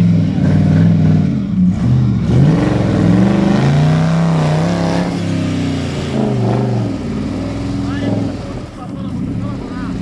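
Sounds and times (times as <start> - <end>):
off-road vehicle engine revving: 0.0 - 10.0.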